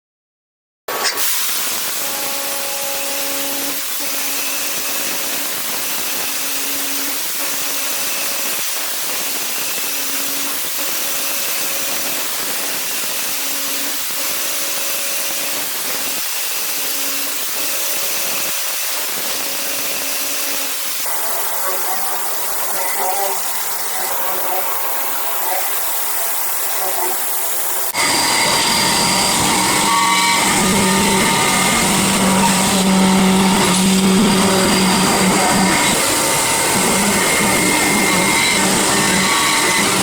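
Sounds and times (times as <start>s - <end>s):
milling cutter hissing through metal: 1.0s - 40.0s
machine tone: 1.9s - 40.0s.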